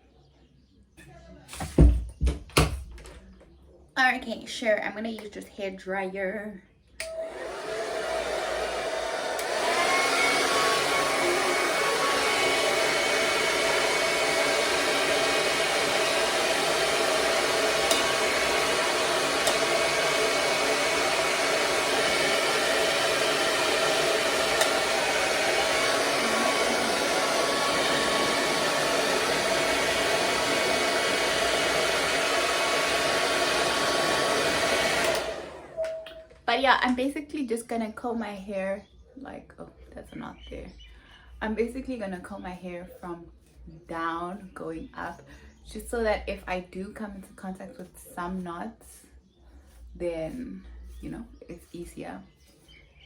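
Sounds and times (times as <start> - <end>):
hair dryer blowing: 7.0 - 36.2.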